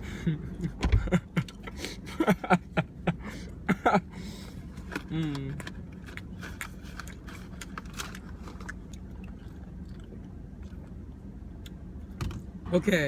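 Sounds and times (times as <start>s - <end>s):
low steady hum: 0.0s - 13.0s
person chewing crunchy food: 4.4s - 12.2s.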